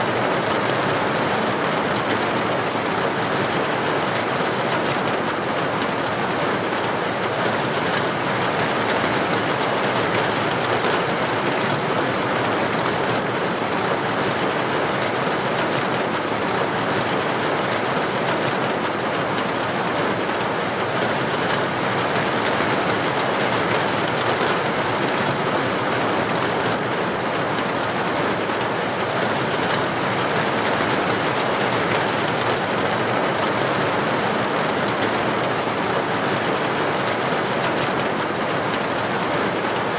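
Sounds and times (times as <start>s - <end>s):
heavy rain on a street: 0.0s - 39.9s.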